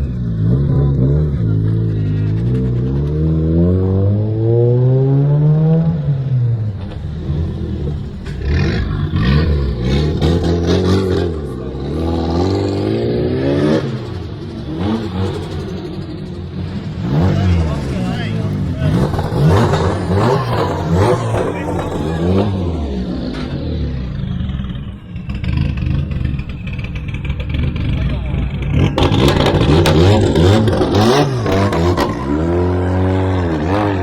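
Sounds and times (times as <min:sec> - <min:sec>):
car engine accelerating and revving: 0:00.0 - 0:34.0.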